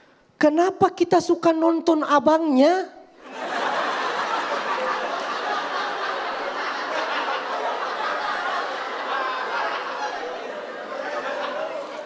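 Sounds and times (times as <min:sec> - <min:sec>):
audience laughing: 0:03.2 - 0:12.0.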